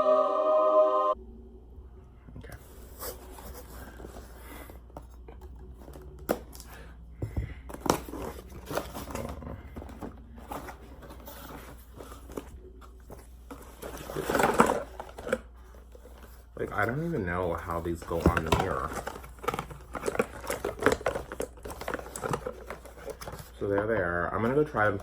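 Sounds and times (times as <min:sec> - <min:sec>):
steady low hum: 0:01.0 - 0:14.1
packaging crinkling and tearing: 0:07.7 - 0:25.0
packaging rustle: 0:07.7 - 0:25.0.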